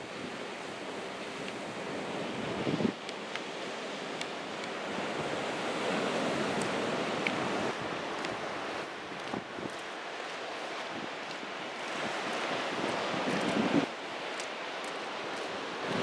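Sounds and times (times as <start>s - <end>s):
ocean surf washing in: 0.0s - 16.0s
wind on microphone: 1.7s - 3.0s, 4.9s - 14.3s, 15.3s - 16.0s.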